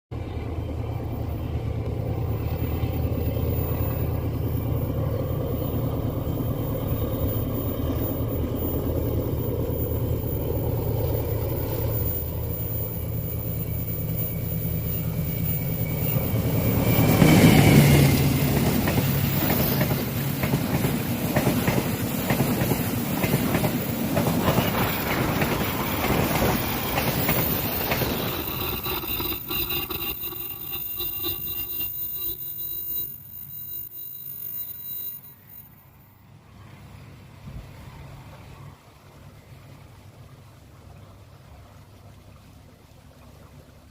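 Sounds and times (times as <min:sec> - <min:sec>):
diesel locomotive engine droning: 0:00.1 - 0:38.8
train carriages clattering over rails: 0:14.9 - 0:29.8.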